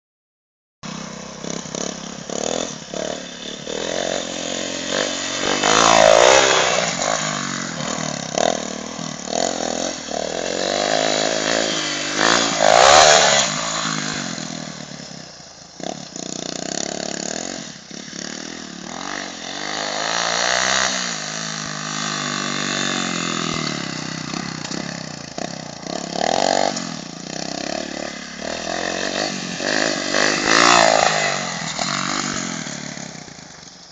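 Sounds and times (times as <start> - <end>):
motocross bike engine revving: 0.8 - 33.9.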